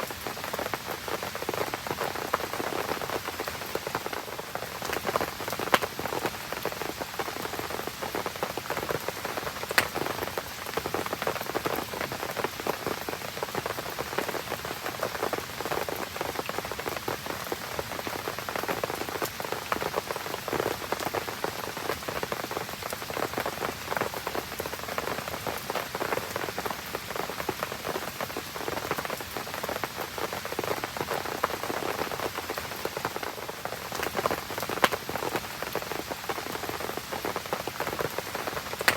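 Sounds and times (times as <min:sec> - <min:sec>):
rain pattering: 0:00.0 - 0:38.9
campfire crackling: 0:09.3 - 0:10.4, 0:37.8 - 0:38.9
sharp fire pops: 0:09.7 - 0:10.1.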